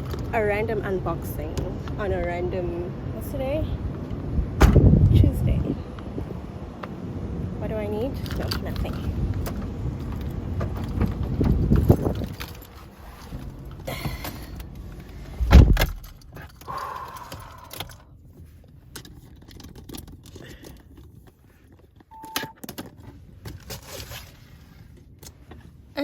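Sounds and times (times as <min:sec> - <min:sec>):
heavy thump: 0:04.6 - 0:05.1, 0:15.3 - 0:16.1
short single-pitched beep: 0:22.1 - 0:22.6.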